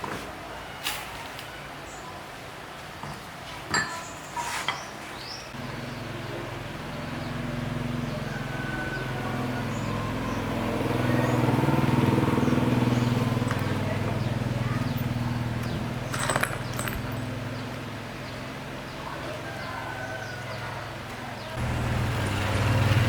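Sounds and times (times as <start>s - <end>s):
motor humming: 21.6s - 23.0s.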